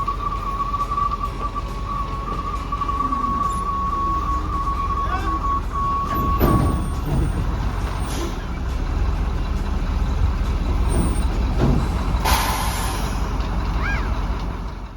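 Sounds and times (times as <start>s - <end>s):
heavy truck engine rumbling: 0.0s - 14.9s
air brake hiss: 12.2s - 13.4s.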